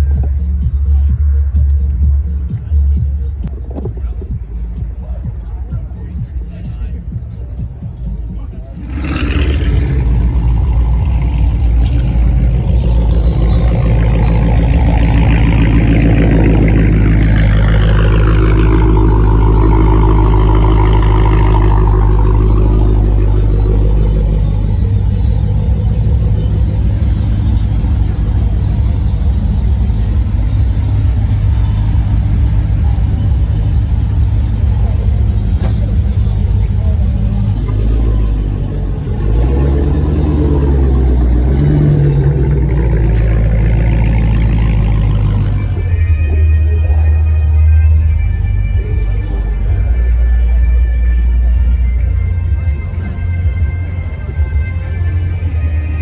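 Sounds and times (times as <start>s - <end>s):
car engine rumbling and revving: 0.0s - 56.0s.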